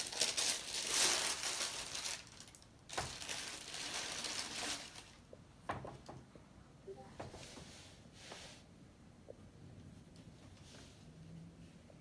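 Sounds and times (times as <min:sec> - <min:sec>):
paper packaging crinkling: 0:00.0 - 0:05.2.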